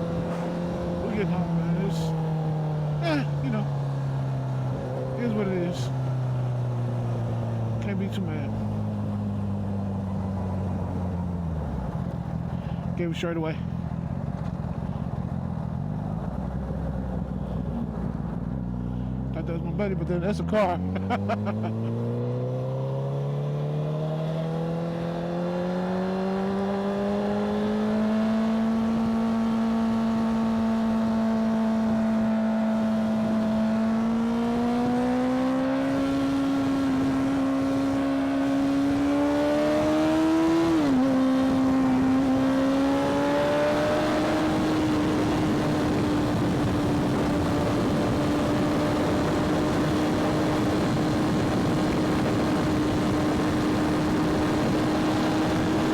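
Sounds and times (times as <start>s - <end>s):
motorcycle engine accelerating: 0.0s - 12.8s, 13.7s - 55.9s
wind rush on microphone: 39.0s - 55.9s.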